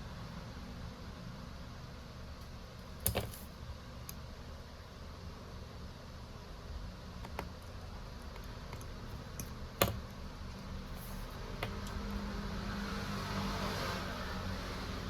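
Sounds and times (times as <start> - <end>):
small tools clicking and tapping: 3.0 - 3.4.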